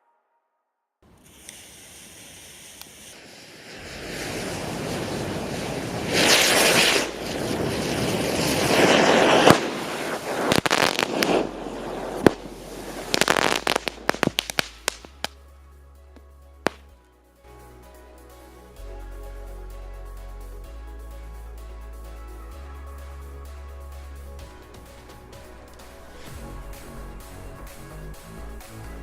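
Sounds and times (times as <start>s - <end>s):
firework fountain hissing: 1.0s - 15.4s, 17.5s - 29.0s
firework crackles and pops: 1.1s - 15.4s, 16.2s - 17.0s, 24.4s - 29.0s.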